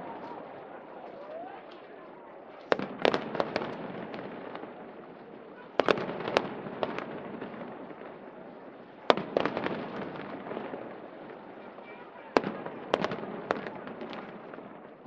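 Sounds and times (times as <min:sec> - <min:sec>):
fireworks bursting: 0:02.6 - 0:15.0.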